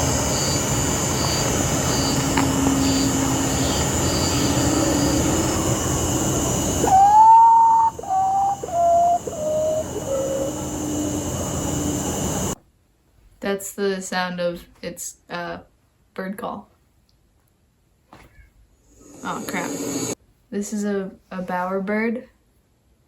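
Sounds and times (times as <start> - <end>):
steady noisy hum: 0.0 - 23.0
bird mournful whistles: 2.0 - 12.4.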